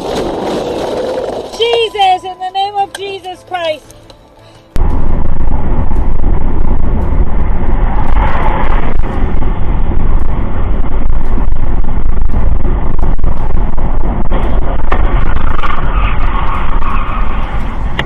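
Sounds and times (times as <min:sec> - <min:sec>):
vehicle rumbling: 0:00.0 - 0:18.0
wind noise on microphone: 0:04.7 - 0:18.0.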